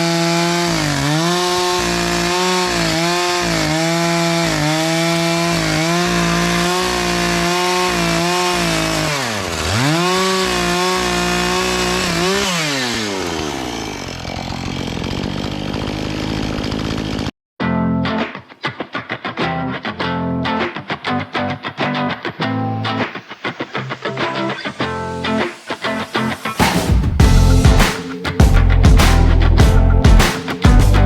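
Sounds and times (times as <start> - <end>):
chainsaw cutting wood: 0.0 - 17.3
guitar music: 17.6 - 31.0.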